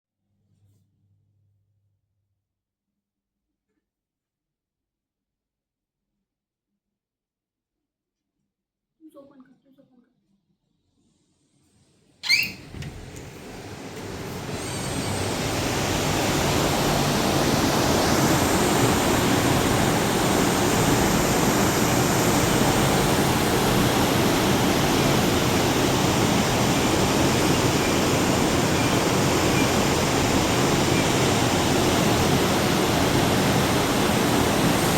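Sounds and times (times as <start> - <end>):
rushing river water: 13.8 - 34.9.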